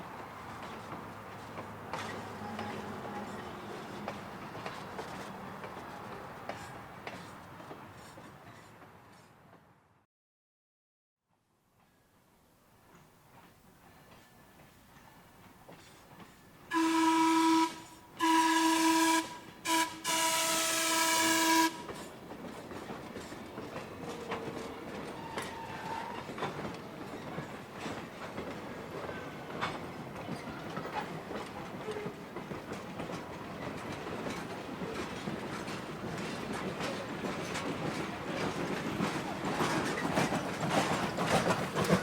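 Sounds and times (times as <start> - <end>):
train wheels clicking over rail joints: 0.0 - 9.6, 12.7 - 16.8, 21.7 - 42.0
steam whistle blowing: 16.7 - 21.9.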